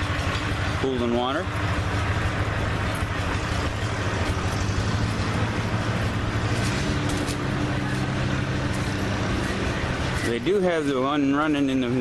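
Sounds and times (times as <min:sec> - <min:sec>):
stationary gas engine running: 0:00.0 - 0:11.7.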